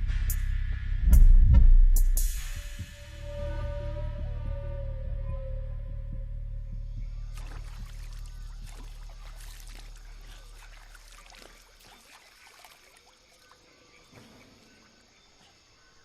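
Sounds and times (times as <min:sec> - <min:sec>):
low film score drone: 0:00.0 - 0:10.7
trickling water: 0:07.0 - 0:15.6.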